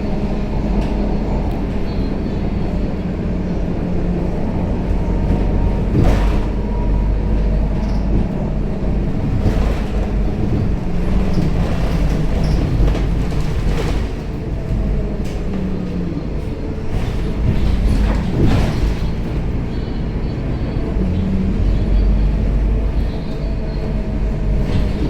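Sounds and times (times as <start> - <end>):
bus engine drone: 0.0 - 25.0
road noise: 0.0 - 25.0.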